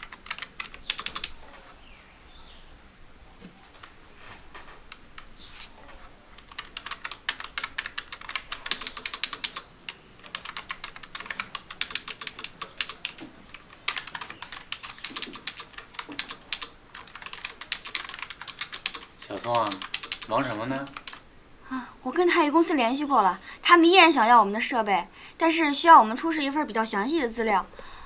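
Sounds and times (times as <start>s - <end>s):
fast keyboard typing: 0.0s - 1.7s, 3.7s - 21.3s.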